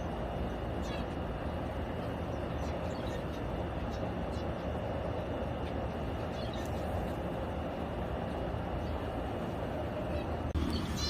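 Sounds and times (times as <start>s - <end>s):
small bird chirp: 0.0s - 1.3s, 2.0s - 4.8s, 5.5s - 7.1s, 10.0s - 11.0s
low rumbling background noise: 0.0s - 11.0s.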